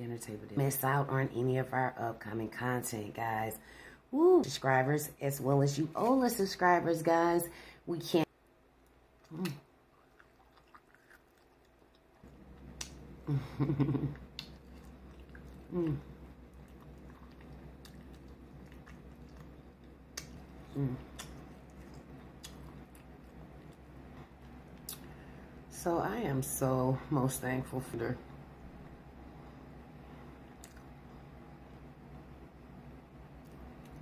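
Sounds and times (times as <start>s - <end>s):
person biting and chewing food: 9.2s - 13.2s, 14.1s - 25.2s
person humming: 15.7s - 16.1s, 20.7s - 21.2s
wet mouth clicks: 20.1s - 22.7s, 30.6s - 30.9s.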